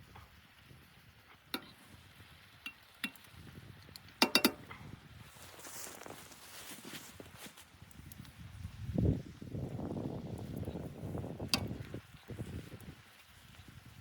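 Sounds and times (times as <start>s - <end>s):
light metallic clinks: 4.2s - 4.7s.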